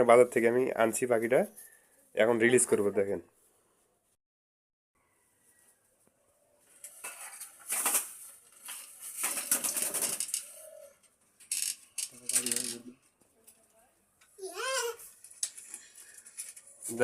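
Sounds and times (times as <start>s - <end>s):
wings flapping: 9.0s - 10.6s.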